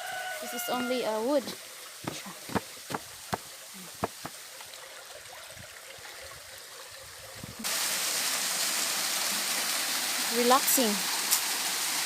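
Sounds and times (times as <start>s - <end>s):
water rushing: 0.0s - 12.0s
faint clicks and low thuds: 2.0s - 4.4s.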